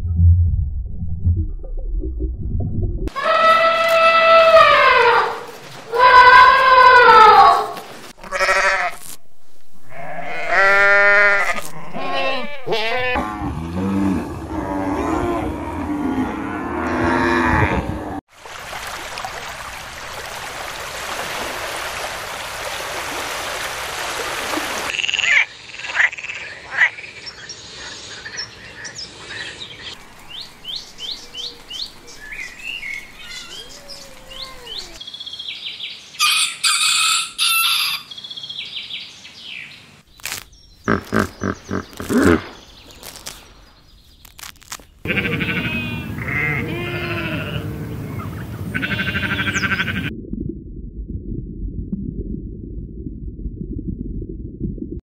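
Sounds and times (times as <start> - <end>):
chicken calling loudly: 3.1 - 8.9, 36.2 - 38.1
sheep and lambs bleating: 8.2 - 9.0, 9.8 - 13.2, 45.0 - 48.0, 48.7 - 50.1
frog croaking: 24.9 - 27.0, 40.9 - 42.5.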